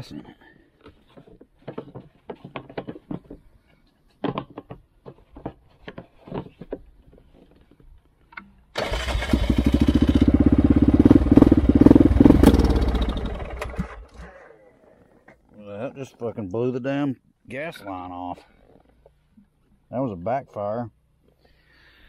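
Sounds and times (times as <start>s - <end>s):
atv engine cranking: 8.7s - 15.3s
atv engine running: 8.8s - 14.5s.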